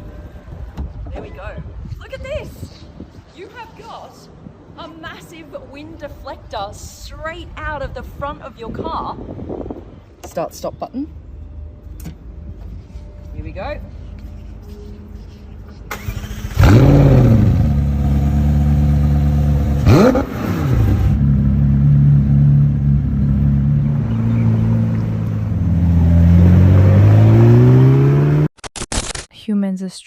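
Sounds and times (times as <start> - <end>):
sports car engine starting and revving: 15.9 - 28.5.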